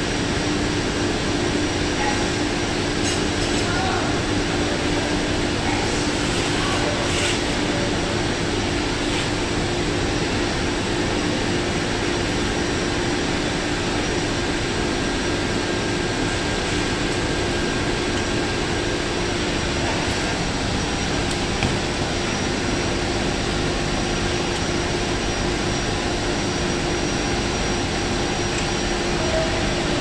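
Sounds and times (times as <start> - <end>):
industrial machinery drone: 0.0 - 30.0.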